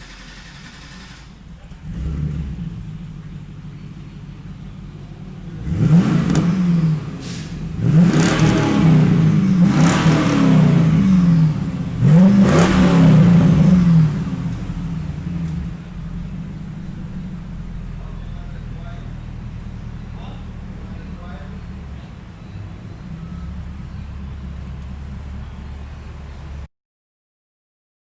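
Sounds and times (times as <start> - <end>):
car engine idling and revving: 0.0 - 26.7.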